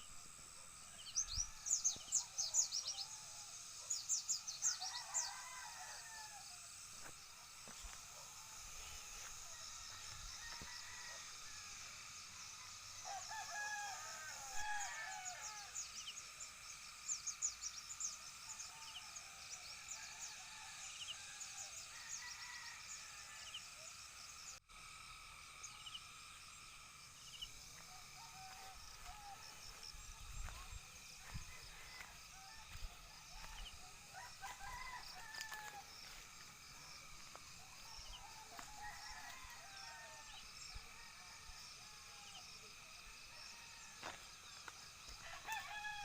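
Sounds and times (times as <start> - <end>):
high insect drone: 0.0 - 46.0
wavering crowing call: 27.7 - 36.2.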